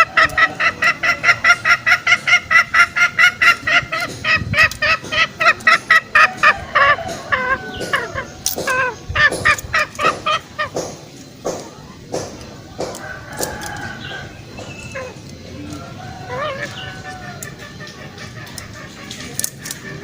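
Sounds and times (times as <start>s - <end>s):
junglefowl sharp clucks: 0.0s - 11.1s, 12.2s - 20.0s.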